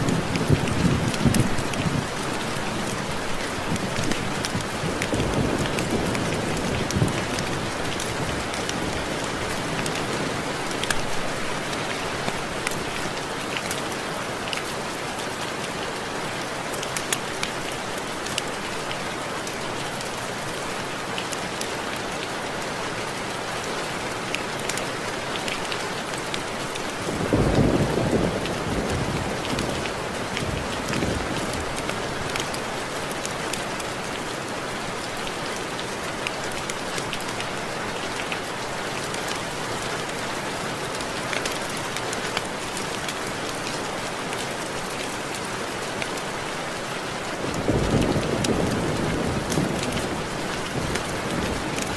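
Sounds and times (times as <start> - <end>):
steady rain: 0.0 - 51.9
distant thunder rumble: 27.0 - 31.9, 47.5 - 51.9.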